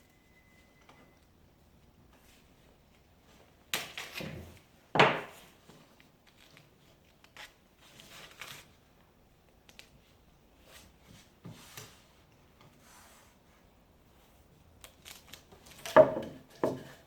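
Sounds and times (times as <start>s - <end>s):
wood knocking on workbench: 5.0s - 5.3s, 16.0s - 16.9s.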